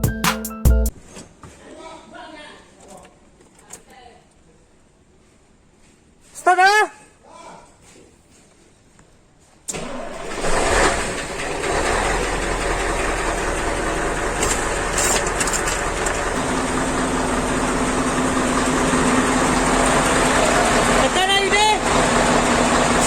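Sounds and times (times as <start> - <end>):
diesel truck engine idling: 9.7 - 23.0
steady whine: 9.8 - 23.0.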